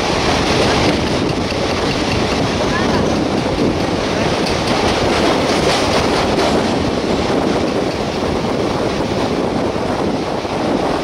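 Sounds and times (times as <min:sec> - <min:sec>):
train wheels rumbling in tunnel: 0:00.0 - 0:11.0
wheels clicking over rail joints: 0:00.1 - 0:08.6.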